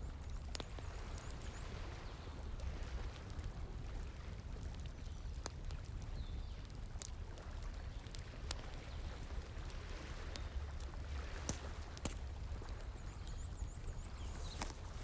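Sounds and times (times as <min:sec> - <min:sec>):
wood fire crackling: 0:10.6 - 0:15.0.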